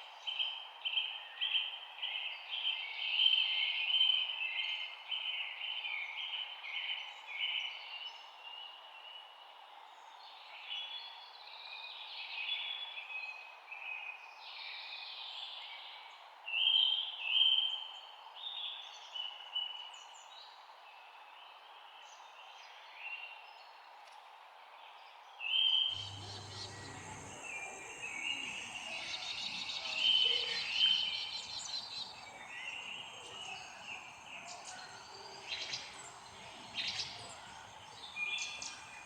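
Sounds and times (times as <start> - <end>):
low hum: 26.0 - 39.0
songbirds chirping and singing: 26.0 - 39.0
steady background hiss: 26.0 - 39.0.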